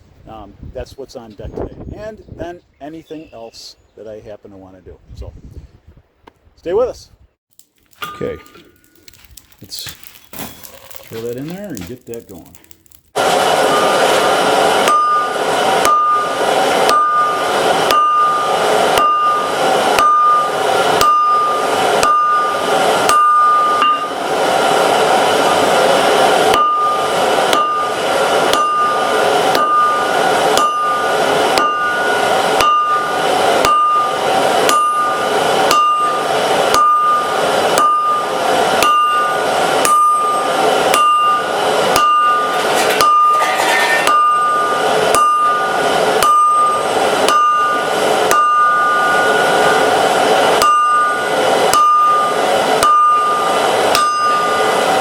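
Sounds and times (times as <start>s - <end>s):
anvil ringing: 8.0s - 9.2s, 13.6s - 55.0s
hammer striking steel on anvil: 8.0s - 9.2s, 12.1s - 55.0s
steady rush: 11.2s - 55.0s.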